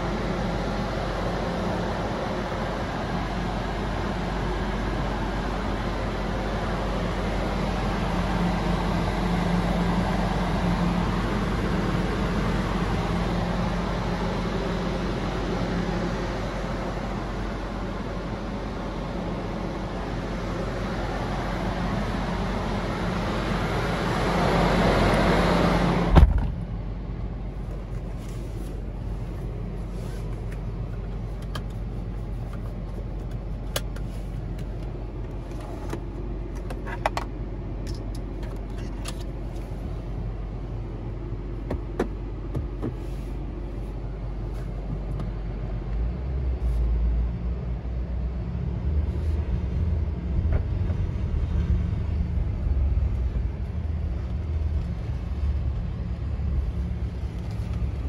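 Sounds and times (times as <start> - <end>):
car engine idling: 0.0 - 46.7, 47.3 - 58.0
thump: 26.1 - 26.6.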